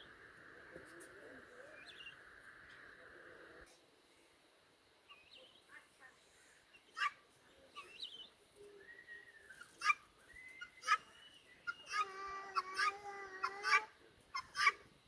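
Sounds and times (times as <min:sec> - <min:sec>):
turkey chirps and gliding calls: 0:06.7 - 0:14.9
turkey clucks: 0:06.9 - 0:07.2, 0:09.5 - 0:14.9.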